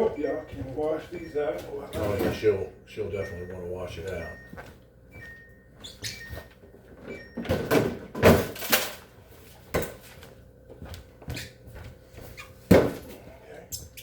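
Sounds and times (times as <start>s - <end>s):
refrigerator bins knocking and rattling: 1.9s - 2.6s, 6.9s - 10.2s, 12.6s - 13.3s.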